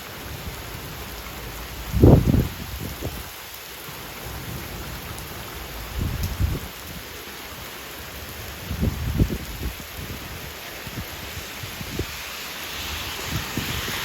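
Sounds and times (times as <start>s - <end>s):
heavy rain falling: 0.0s - 14.0s
wind buffeting microphone: 1.7s - 3.4s, 5.8s - 7.1s, 8.2s - 14.0s.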